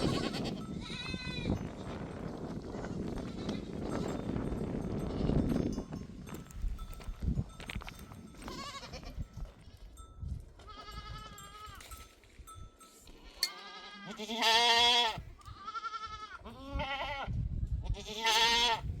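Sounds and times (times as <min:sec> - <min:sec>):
goats bleating: 0:00.0 - 0:01.5, 0:08.4 - 0:09.2, 0:10.6 - 0:11.8, 0:13.2 - 0:17.3, 0:17.9 - 0:18.8.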